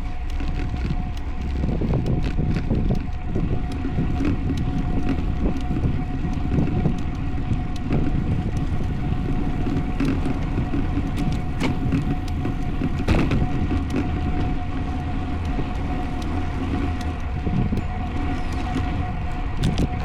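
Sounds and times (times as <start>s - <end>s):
light ticks: 0.0s - 20.0s
tyre and road rumble: 0.0s - 20.0s
wind buffeting microphone: 0.0s - 20.0s.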